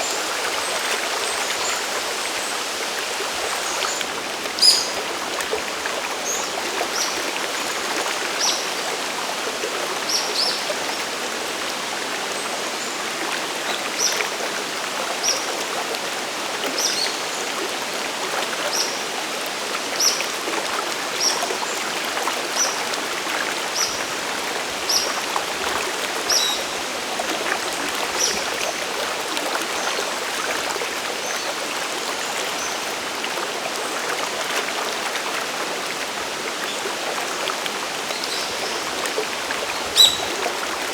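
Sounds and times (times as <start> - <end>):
waterfall and stream rushing: 0.0 - 40.9
bird chirping: 40.0 - 40.4.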